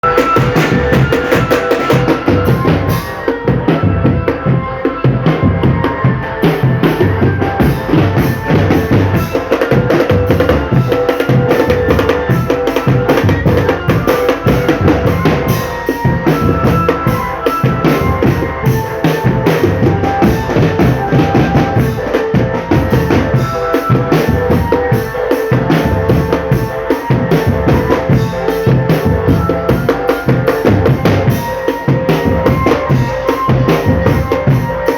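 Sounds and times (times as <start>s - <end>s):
snare drum beats: 0.0s - 3.2s
bass drum beats: 0.0s - 34.9s
held melody notes: 0.0s - 34.9s
marching drum band playing: 0.0s - 34.9s.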